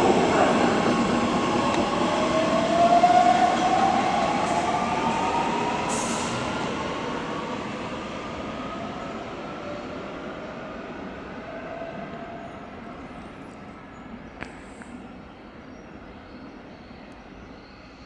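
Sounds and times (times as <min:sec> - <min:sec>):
rising locomotive whine: 0:00.0 - 0:14.2.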